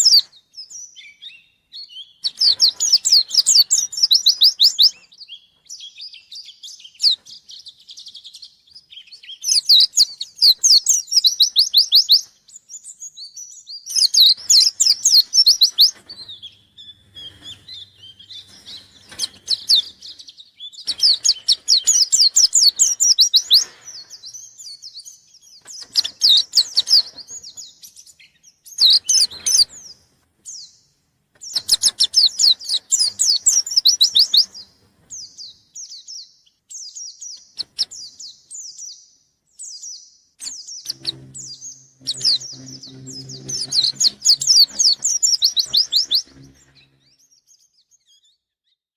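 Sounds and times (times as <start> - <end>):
soft bird chirps: 0.0 - 48.8
bird singing high trilled notes: 13.3 - 23.6, 40.4 - 47.4.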